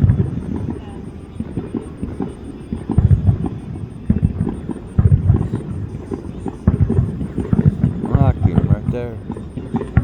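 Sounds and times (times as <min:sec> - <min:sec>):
firework shells booming: 0:00.0 - 0:10.0
fireworks crackling: 0:00.0 - 0:10.0.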